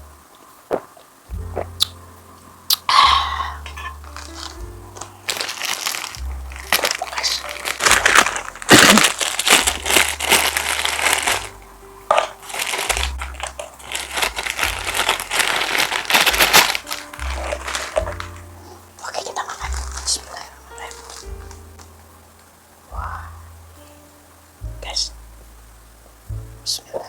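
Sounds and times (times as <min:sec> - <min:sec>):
background music with bass: 0:00.0 - 0:27.0
crinkling handling noise: 0:03.4 - 0:22.6.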